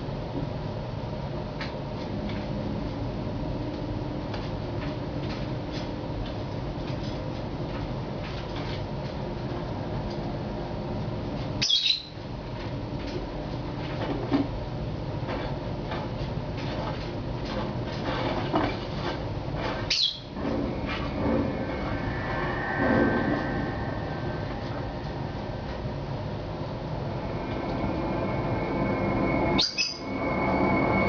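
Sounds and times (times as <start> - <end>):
background hum: 0.0 - 31.0
bird squawking: 19.9 - 20.3.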